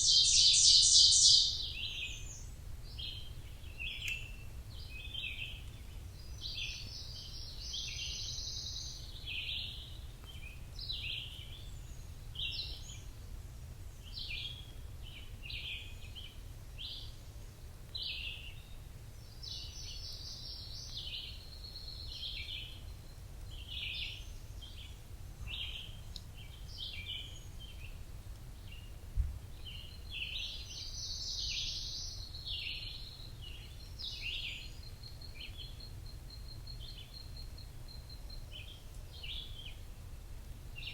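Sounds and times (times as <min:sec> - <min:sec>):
forest birds chirping: 0:00.0 - 0:40.9
brief low thump: 0:29.1 - 0:29.4.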